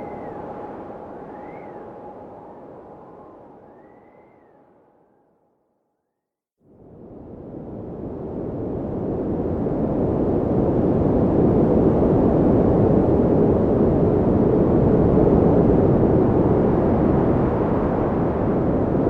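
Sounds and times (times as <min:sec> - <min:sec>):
wind rushing: 0:14.9 - 0:19.0.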